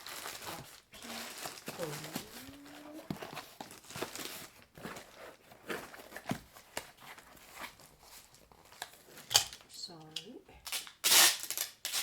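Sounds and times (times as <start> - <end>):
packing material rustling: 0.0 - 9.6.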